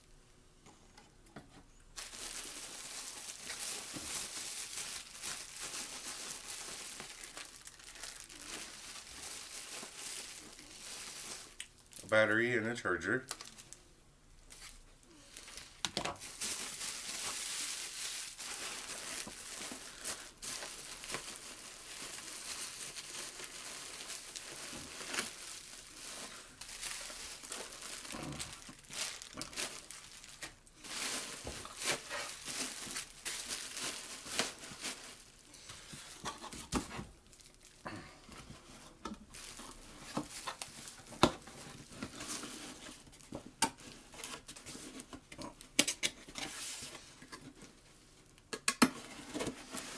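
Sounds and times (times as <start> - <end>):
packaging tearing: 2.0 - 12.1, 15.4 - 37.7
plastic packaging crinkling: 2.0 - 49.9.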